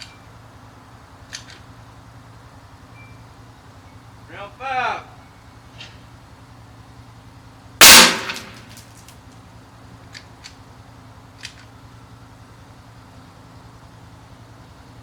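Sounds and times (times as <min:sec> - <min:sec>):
light rifle clicks: 0:01.3 - 0:01.6, 0:11.4 - 0:11.8
rifle shot crack: 0:07.8 - 0:08.8.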